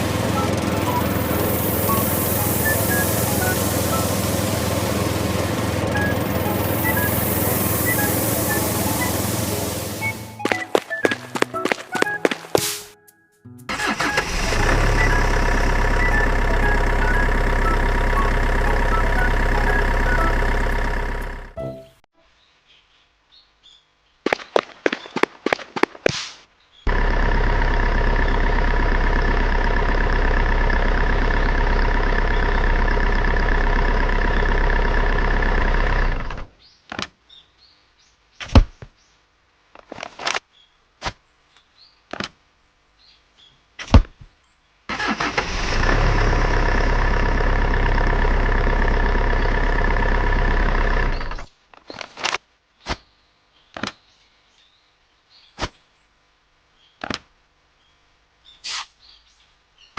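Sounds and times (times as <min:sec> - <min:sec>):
small motor running: 0:00.0 - 0:10.1.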